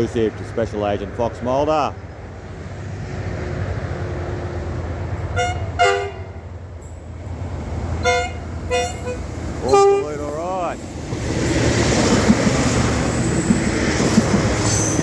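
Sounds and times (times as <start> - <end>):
rail vehicle rumbling: 0.0 - 15.0
short horn toots: 8.0 - 10.2.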